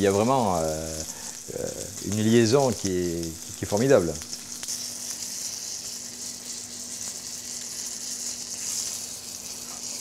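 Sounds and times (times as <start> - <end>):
meat sizzling in a frying pan: 0.0 - 10.0.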